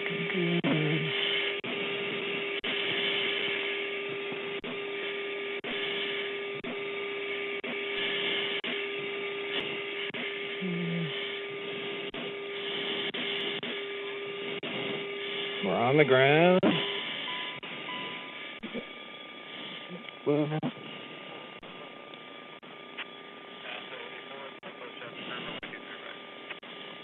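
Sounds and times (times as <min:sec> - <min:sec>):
constant hum tone: 0:00.0 - 0:27.0
cockpit intercom hiss: 0:23.0 - 0:26.2.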